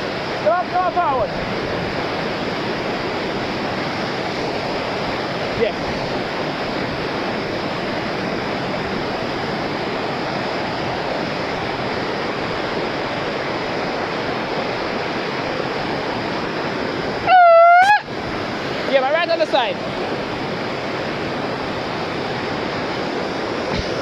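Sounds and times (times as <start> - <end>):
waterfall rushing: 0.0 - 24.0
loud high-pitched call: 17.2 - 18.1.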